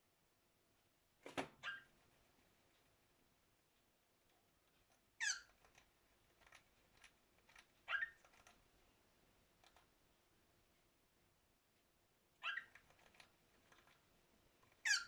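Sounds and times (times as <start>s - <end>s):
cockatiel chirping: 1.6s - 1.9s, 5.2s - 5.6s, 7.8s - 8.3s, 12.4s - 12.9s, 14.8s - 15.0s.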